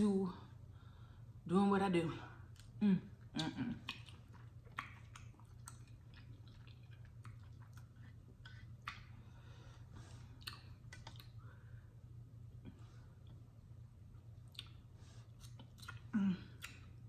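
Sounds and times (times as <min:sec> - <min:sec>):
person chewing: 0:02.5 - 0:11.8, 0:14.2 - 0:17.0.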